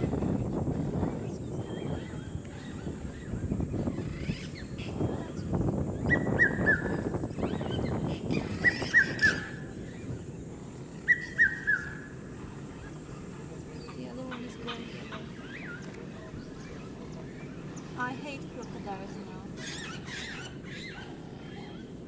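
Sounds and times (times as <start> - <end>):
bird whistling call: 6.0 - 10.0, 11.0 - 12.2.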